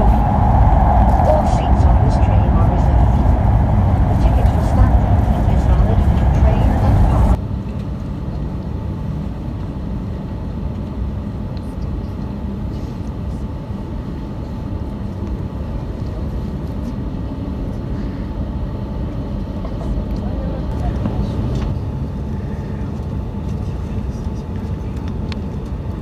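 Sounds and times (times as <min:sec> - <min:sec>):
train rumbling: 0:00.0 - 0:07.4, 0:19.3 - 0:26.0.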